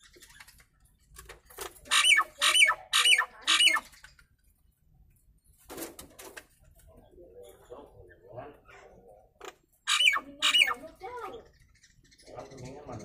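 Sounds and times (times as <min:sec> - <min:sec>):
myna harsh squawking calls: 0:01.9 - 0:04.1, 0:09.8 - 0:11.4.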